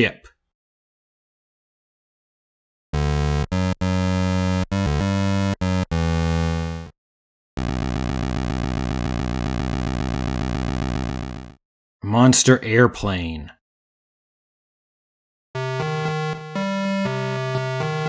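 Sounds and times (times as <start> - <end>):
chiptune buzzy electronic tones: 3.0 - 6.9, 7.6 - 11.6, 15.6 - 18.0.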